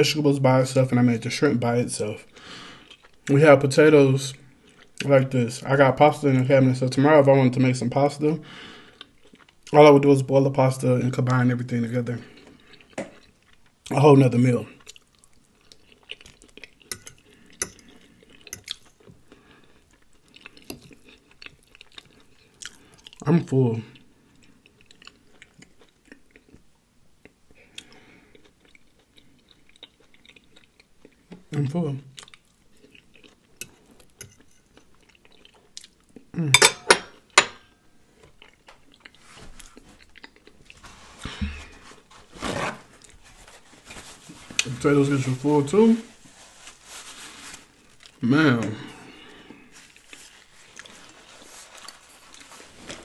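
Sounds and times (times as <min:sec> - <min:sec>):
wet chewing and lip smacking: 0:24.4 - 0:31.4, 0:38.2 - 0:40.8
wet chewing and lip smacks: 0:38.3 - 0:40.8.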